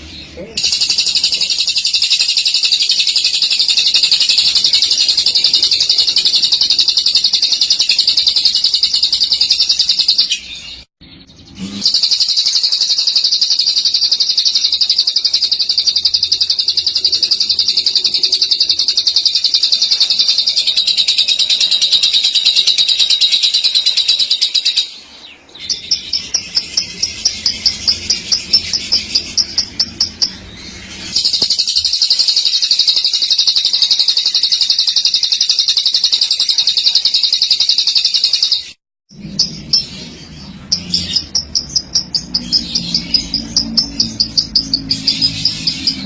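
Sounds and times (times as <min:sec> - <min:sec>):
lovebird chattering trill: 0:00.0 - 0:10.8, 0:11.5 - 0:25.0, 0:25.6 - 0:38.8, 0:39.4 - 0:46.0.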